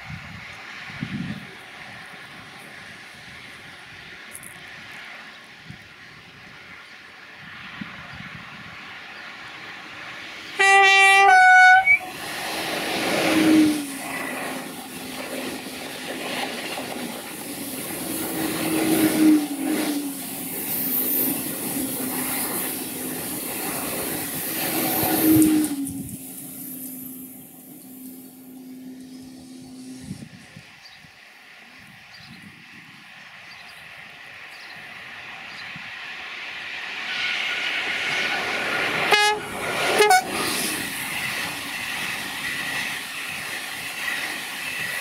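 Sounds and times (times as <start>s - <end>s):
train humming tone: 0.0s - 45.0s
train wheels rushing on rail: 0.0s - 45.0s
train horn notes: 10.6s - 12.2s, 13.2s - 14.0s, 24.9s - 26.2s, 39.1s - 40.5s.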